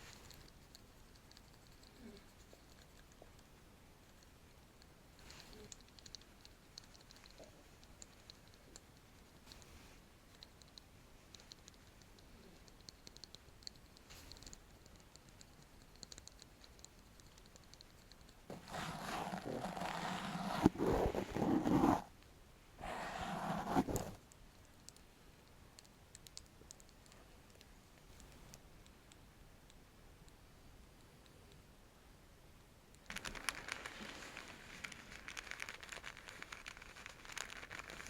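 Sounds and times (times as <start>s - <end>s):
dense scratching on object: 18.5s - 22.1s, 22.8s - 24.2s.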